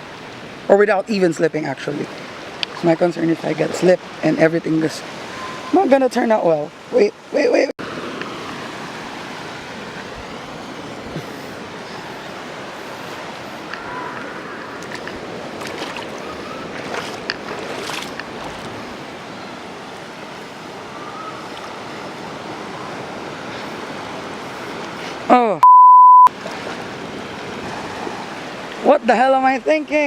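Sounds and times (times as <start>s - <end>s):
sea surf washing over rocks: 1.8s - 25.3s, 26.3s - 30.0s
knocks and splashes: 13.8s - 18.9s.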